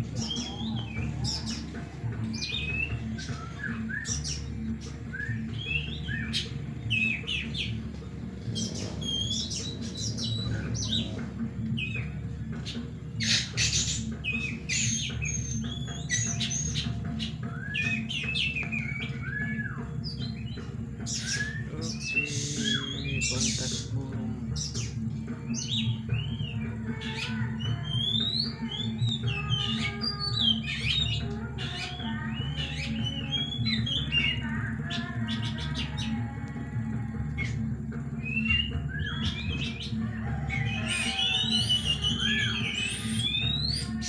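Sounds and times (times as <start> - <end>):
songbirds singing together: 0.0 - 44.0.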